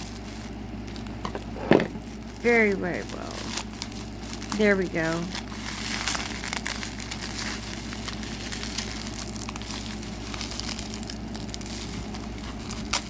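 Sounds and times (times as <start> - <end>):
packing wrap crinkling: 0.0 - 13.0.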